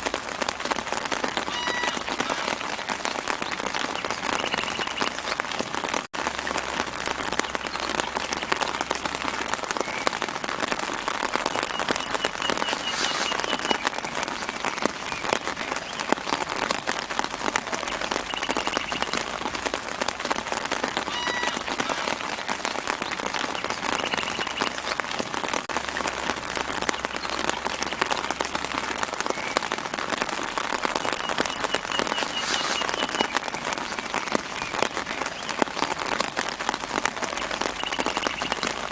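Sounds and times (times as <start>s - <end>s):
light rain on leaves: 0.0s - 38.9s
bird chirping: 3.4s - 5.3s, 11.5s - 14.5s, 23.4s - 24.8s, 31.2s - 34.8s.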